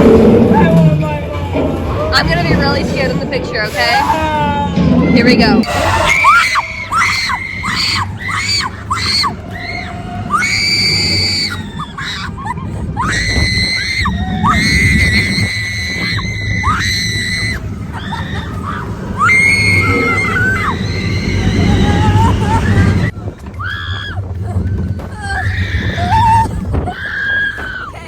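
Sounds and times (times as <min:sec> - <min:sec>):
low rumble of ride: 0:00.0 - 0:28.0
riders screaming: 0:05.6 - 0:28.0.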